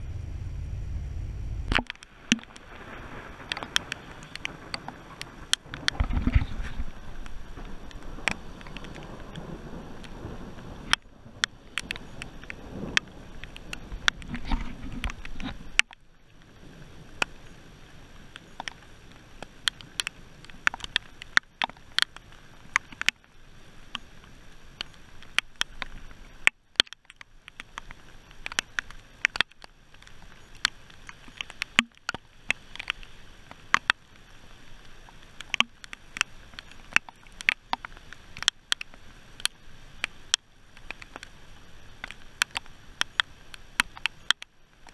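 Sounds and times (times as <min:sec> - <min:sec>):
raindrops tapping on metal hull: 0:00.0 - 0:17.4, 0:18.1 - 0:44.9
low wind noise: 0:00.0 - 0:44.9.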